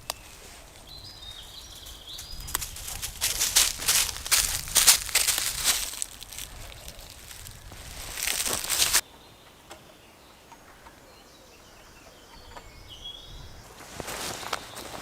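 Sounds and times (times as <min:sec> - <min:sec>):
faint bird chirps: 0:00.0 - 0:03.0, 0:06.4 - 0:15.0
rustling in dry leaves: 0:00.0 - 0:09.0, 0:13.7 - 0:15.0.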